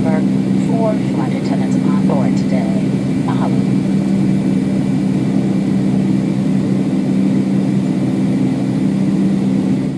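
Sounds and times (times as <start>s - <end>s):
jet engines droning: 0.0s - 9.9s
low hum: 0.0s - 9.9s.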